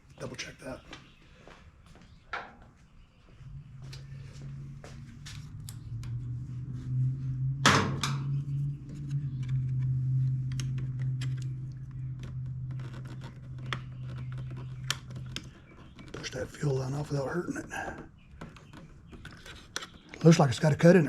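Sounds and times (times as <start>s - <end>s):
steady low hum: 0.0s - 21.0s
tools and parts clicking: 8.9s - 16.2s.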